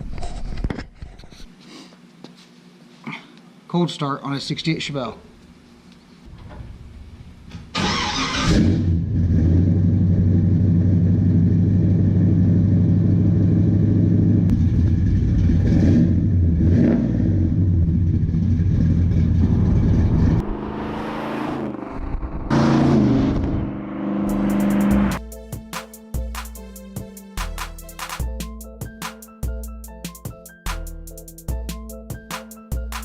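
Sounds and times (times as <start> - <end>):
car engine starting and idling: 7.6 - 25.2
engine throttle blips: 7.8 - 25.2.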